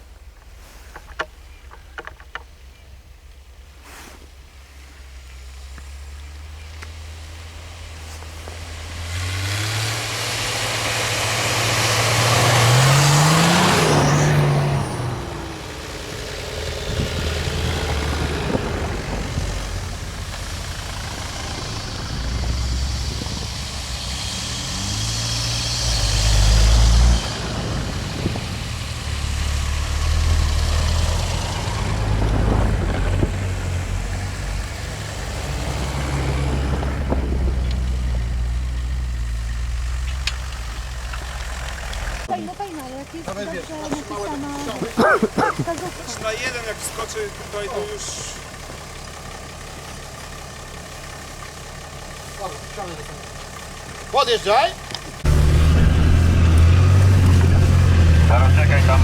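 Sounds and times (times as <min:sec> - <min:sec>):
engine revving hard: 0:06.0 - 0:42.3, 0:54.0 - 0:59.0.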